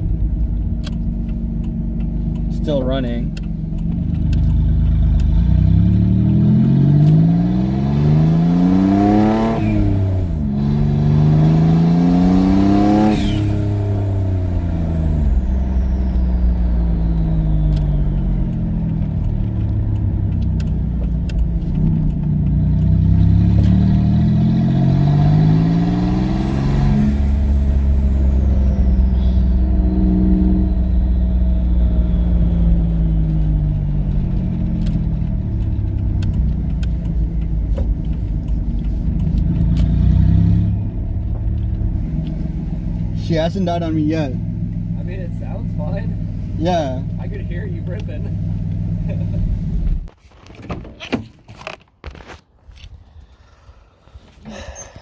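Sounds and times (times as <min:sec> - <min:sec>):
car engine accelerating hard: 0:00.0 - 0:50.1.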